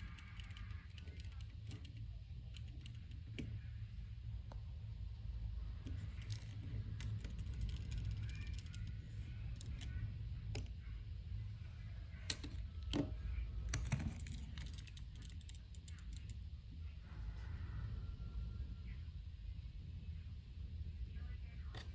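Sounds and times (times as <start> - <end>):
plastic toys clicking and rattling: 0.0 - 3.5, 5.8 - 10.7, 12.3 - 13.1, 13.7 - 16.4
low steady rumble: 0.0 - 21.9.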